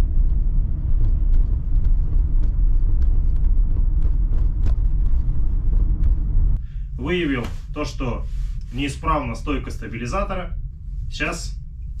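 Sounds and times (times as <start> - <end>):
car road rumble: 0.0 - 12.0.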